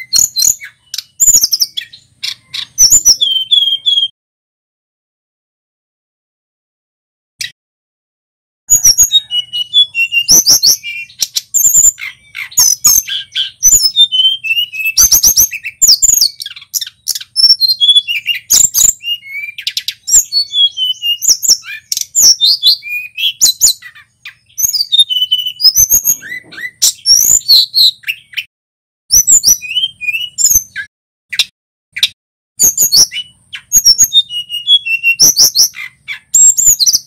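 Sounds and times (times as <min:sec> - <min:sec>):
bird singing chirps and trills: 0:00.0 - 0:04.1, 0:08.7 - 0:28.5, 0:29.1 - 0:37.0.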